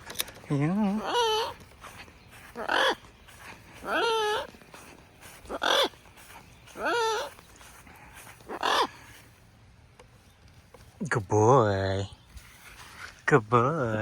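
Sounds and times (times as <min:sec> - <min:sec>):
macaw calling: 0:00.5 - 0:09.3.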